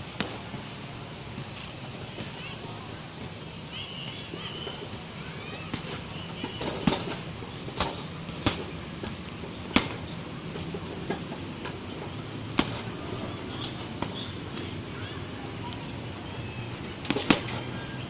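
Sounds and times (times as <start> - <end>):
punches thudding on heavy bag: 4.9 - 11.4, 12.4 - 13.0, 16.9 - 17.6.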